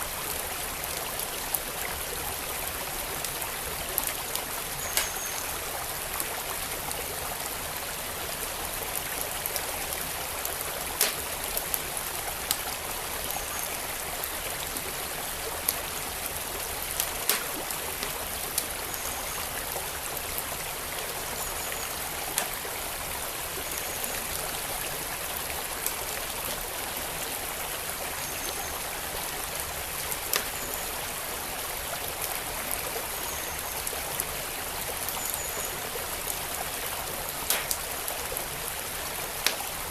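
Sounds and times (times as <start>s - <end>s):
stream flowing: 0.0s - 39.9s
wood fire crackling: 10.8s - 12.7s, 15.6s - 18.8s, 30.1s - 30.5s, 37.4s - 37.9s, 39.3s - 39.9s.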